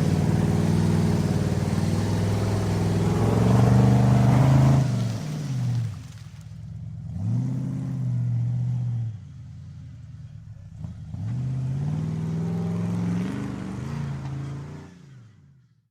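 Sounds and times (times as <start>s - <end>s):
truck engine revving: 0.0s - 6.2s, 10.7s - 15.3s.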